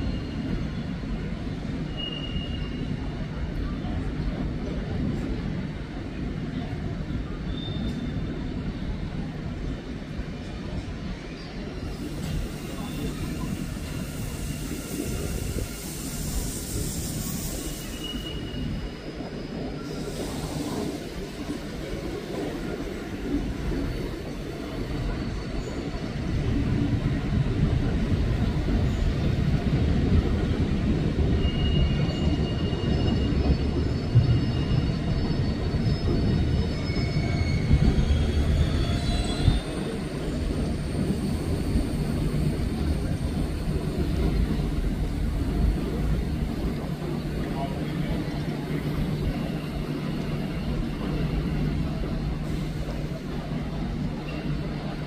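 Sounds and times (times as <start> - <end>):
train wheel squeals: 0.0 - 4.9, 7.2 - 8.8, 10.6 - 55.0
freight train rumbling past: 0.0 - 55.0
electric train running by: 8.4 - 55.0.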